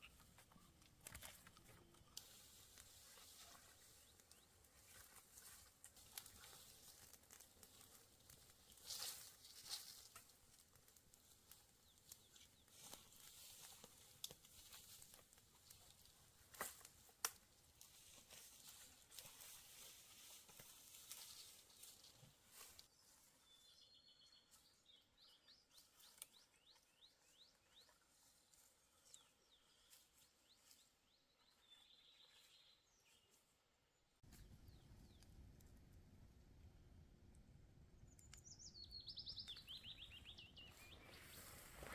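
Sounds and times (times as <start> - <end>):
small bird chirping: 34.3 - 35.7, 38.0 - 41.9.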